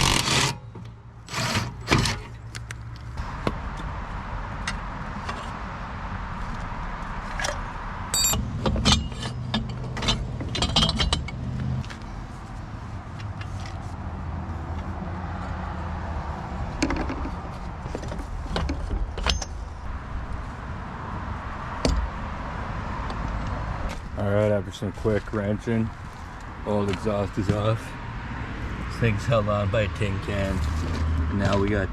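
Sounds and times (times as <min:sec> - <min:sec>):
wrenches clinking on metal: 0:08.1 - 0:11.4.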